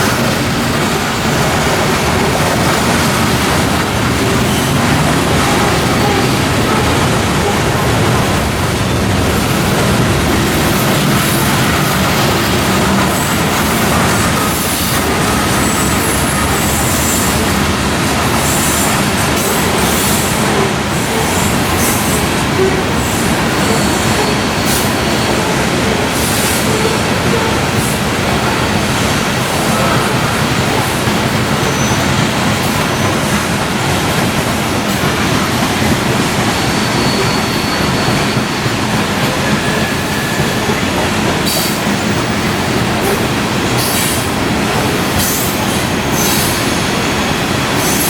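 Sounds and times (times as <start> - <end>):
train wheels rumbling on rail: 0.0 - 48.0
faint wheel squeals: 36.4 - 38.6.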